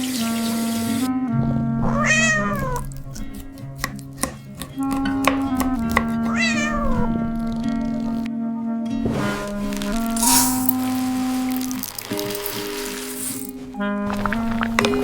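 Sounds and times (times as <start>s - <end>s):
cat meowing: 1.8s - 3.5s, 5.7s - 8.2s.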